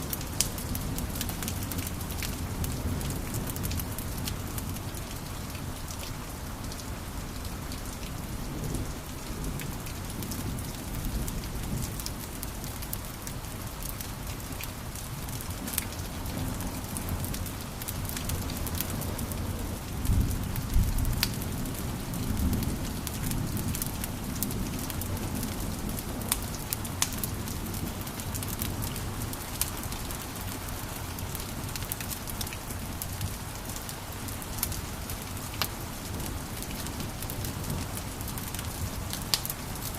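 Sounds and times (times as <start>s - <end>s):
wood fire crackling: 0.0s - 5.2s, 15.3s - 20.0s, 20.6s - 39.9s
sharp pops and snaps of fire: 26.3s - 27.3s.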